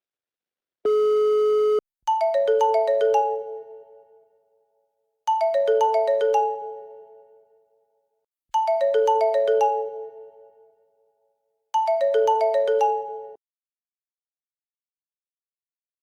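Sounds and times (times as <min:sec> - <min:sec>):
marimba phone ringtone: 0:00.9 - 0:03.8, 0:05.3 - 0:06.9, 0:08.6 - 0:10.3, 0:11.8 - 0:13.4.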